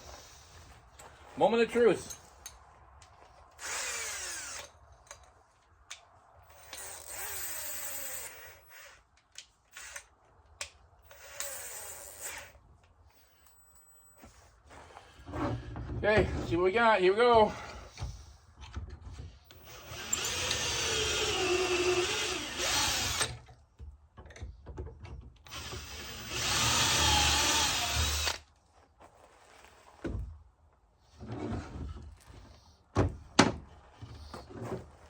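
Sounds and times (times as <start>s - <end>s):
power drill drilling into wood: 3.6s - 4.7s, 6.6s - 9.0s, 19.6s - 23.4s, 25.5s - 28.4s.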